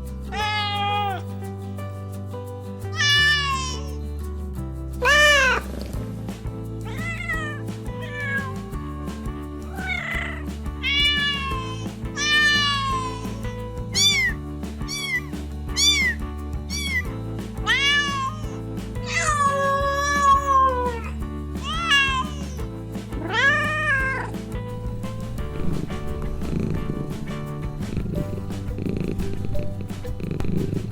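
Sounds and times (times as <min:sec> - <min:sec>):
background music: 0:00.0 - 0:30.9
cat meowing: 0:00.3 - 0:01.2, 0:02.9 - 0:04.0, 0:05.0 - 0:05.7, 0:06.9 - 0:22.6, 0:23.2 - 0:24.3.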